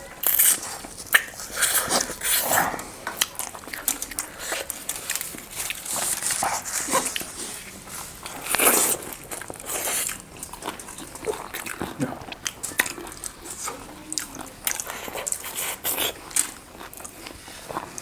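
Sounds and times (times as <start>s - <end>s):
wet chewing: 0.0s - 18.0s
lip smacks: 0.3s - 7.4s.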